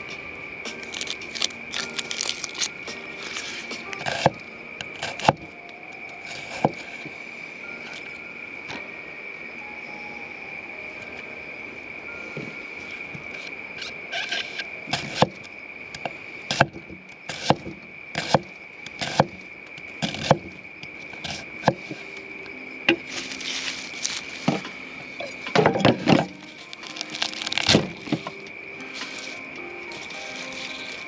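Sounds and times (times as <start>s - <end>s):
high-pitched insect drone: 0.0s - 31.0s
sharp snaps and knocks: 0.7s - 4.4s.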